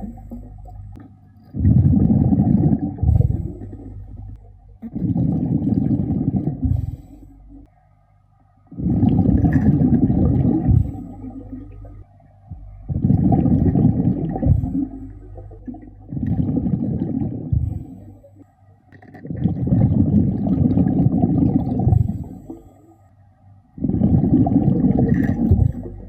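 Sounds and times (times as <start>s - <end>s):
exhaled bubbles rumbling underwater: 0.0s - 7.9s, 8.6s - 26.0s
diver inhaling through regulator: 5.1s - 7.7s.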